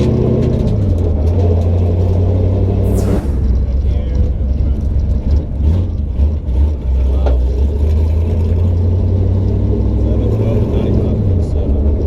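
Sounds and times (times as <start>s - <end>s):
brief sharp sound: 2.8s - 4.9s.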